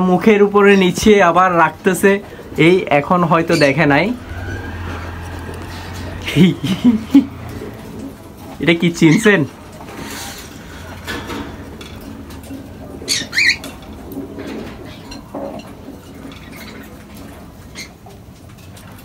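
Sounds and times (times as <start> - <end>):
pet birds calling: 12.9 - 13.7.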